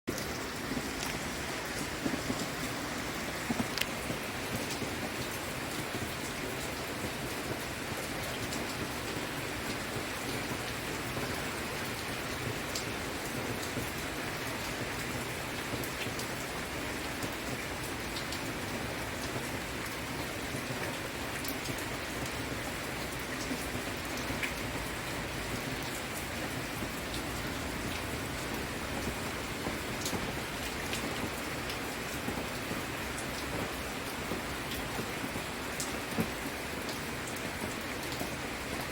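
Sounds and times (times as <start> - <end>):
raindrop ticks: 0.1 - 2.8, 3.4 - 10.6, 12.4 - 14.0
rain pattering: 0.1 - 38.9.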